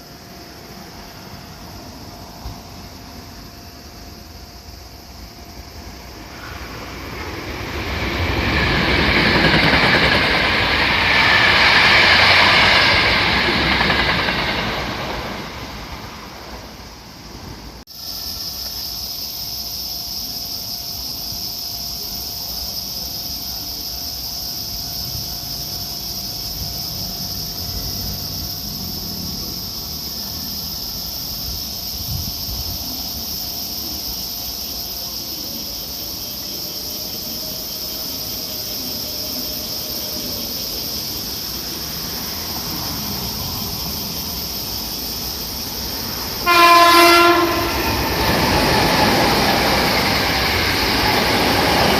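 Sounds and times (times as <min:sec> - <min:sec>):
railway platform background noise: 0:00.0 - 0:51.9
train noise: 0:00.0 - 0:51.9
train horn blast: 0:46.4 - 0:48.1.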